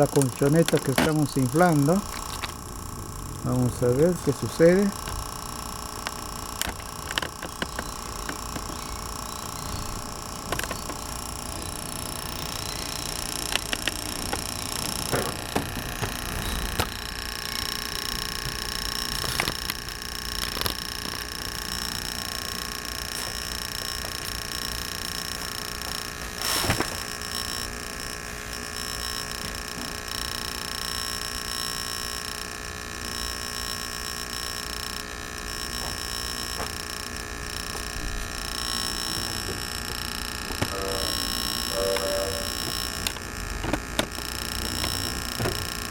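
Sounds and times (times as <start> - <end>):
air mattress compressor humming: 0.0 - 27.4, 36.7 - 45.9.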